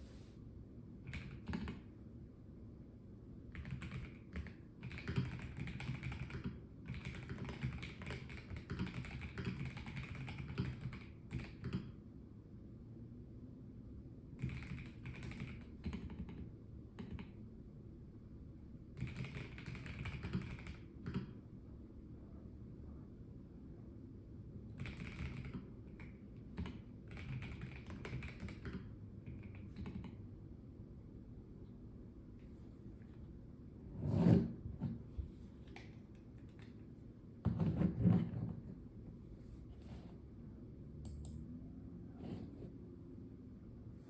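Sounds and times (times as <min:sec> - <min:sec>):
mechanical keyboard typing: 0:01.1 - 0:01.9, 0:03.5 - 0:11.9, 0:14.4 - 0:17.3, 0:19.0 - 0:21.3, 0:24.8 - 0:30.2.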